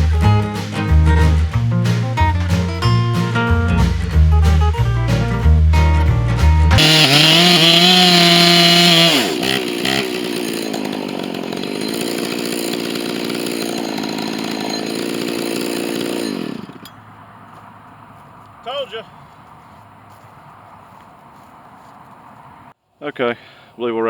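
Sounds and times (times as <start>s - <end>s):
chainsaw cutting: 6.8s - 17.2s.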